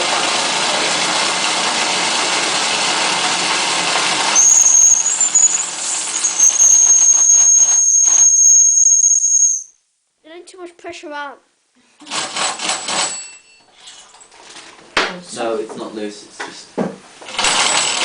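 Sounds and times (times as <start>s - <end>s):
shrill steam whistle: 4.3s - 9.8s.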